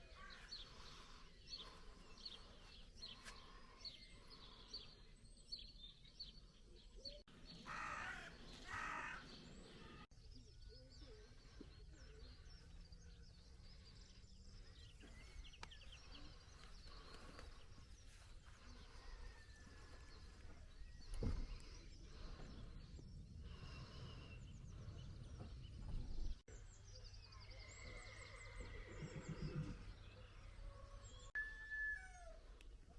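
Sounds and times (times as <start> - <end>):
birds chirping: 0.0 - 32.3
loud harsh bird calls: 7.5 - 10.0.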